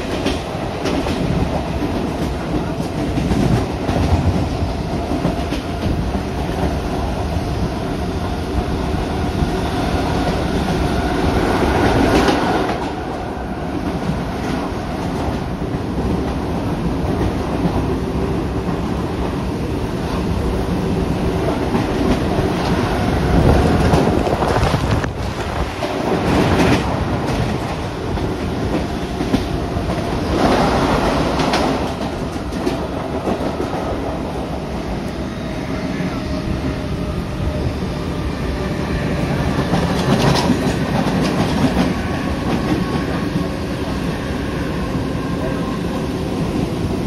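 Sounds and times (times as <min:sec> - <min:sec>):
train wheels clacking over rail joints: 0:39.5 - 0:43.5.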